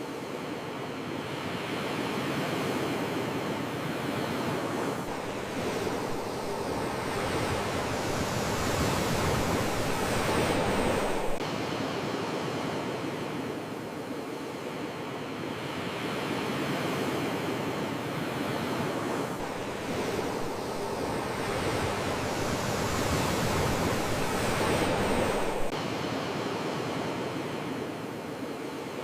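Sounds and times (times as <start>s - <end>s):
sea waves washing ashore: 0.0s - 29.0s.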